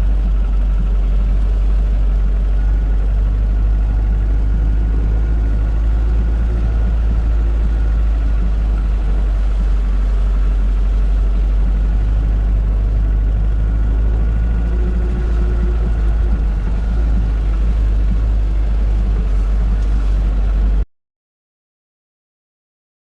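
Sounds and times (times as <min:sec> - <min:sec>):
van engine running: 0:00.0 - 0:20.8.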